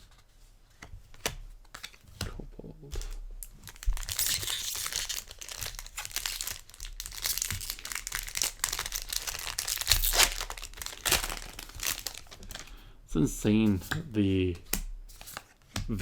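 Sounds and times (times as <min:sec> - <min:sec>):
foil wrapper crinkling: 0:03.0 - 0:12.8.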